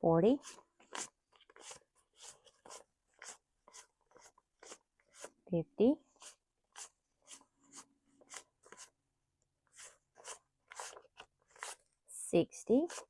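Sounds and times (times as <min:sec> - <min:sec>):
paper bills rustling: 0:00.4 - 0:05.4, 0:09.8 - 0:11.8.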